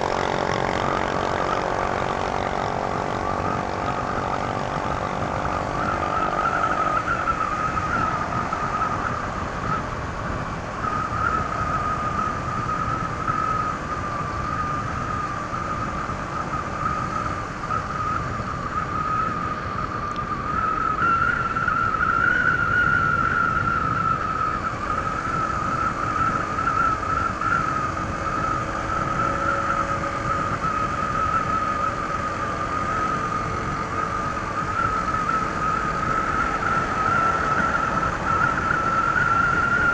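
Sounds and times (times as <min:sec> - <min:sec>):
scooter engine running: 0:00.0 - 0:06.7
high whine: 0:00.0 - 0:39.9
road and wind noise: 0:00.0 - 0:39.9.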